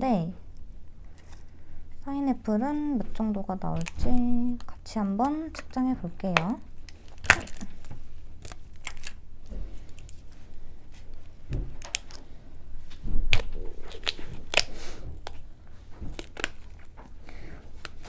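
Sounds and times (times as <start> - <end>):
rustling and crinkling: 5.5 - 18.0.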